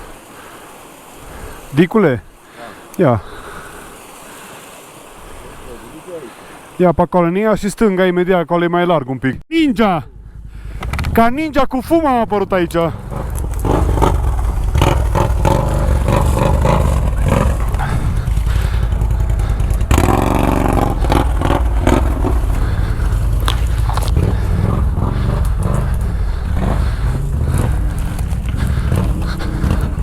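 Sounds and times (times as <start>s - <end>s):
atv engine running under load: 10.0s - 30.0s
knocks and scrapes on rocks: 12.9s - 30.0s.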